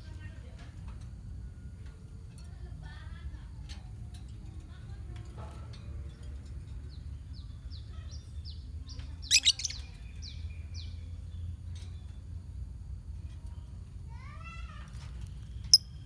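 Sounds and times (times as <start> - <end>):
lovebirds chirping: 7.3 - 11.5.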